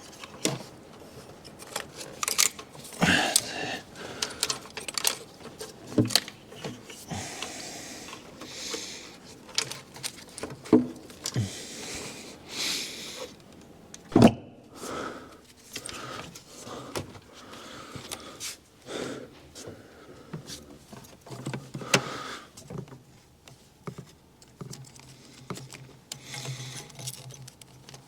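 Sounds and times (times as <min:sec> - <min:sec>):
tools clicking and clunking: 0:00.0 - 0:11.5, 0:20.4 - 0:28.0.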